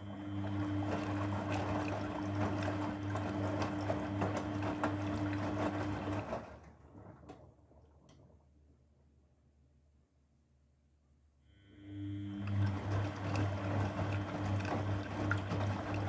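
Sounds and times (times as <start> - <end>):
washing machine motor hum: 0.0 - 9.0, 11.5 - 16.0
water and laundry sloshing: 0.1 - 8.1, 12.4 - 16.0.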